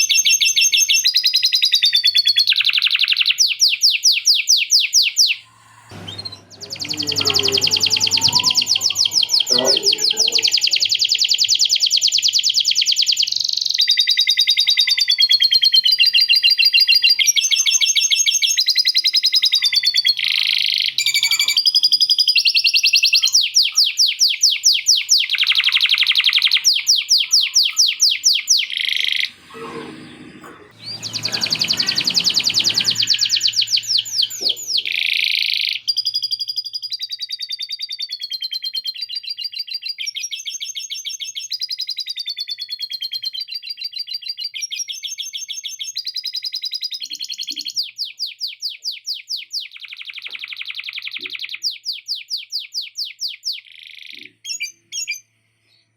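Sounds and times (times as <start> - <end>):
canary singing trills: 2.3 - 29.6, 30.6 - 37.2.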